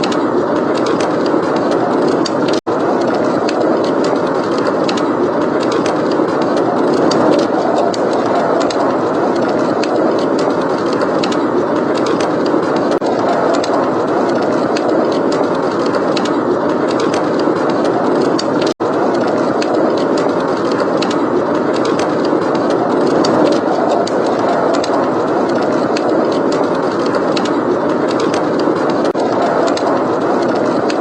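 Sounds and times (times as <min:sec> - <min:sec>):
blizzard wind blowing: 0:00.0 - 0:31.0
wood fire crackling: 0:00.0 - 0:31.0.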